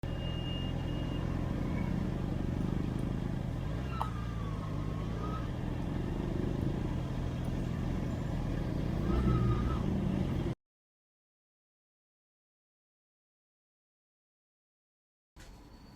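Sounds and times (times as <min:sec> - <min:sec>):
vehicle engine and road noise: 0:00.0 - 0:10.6.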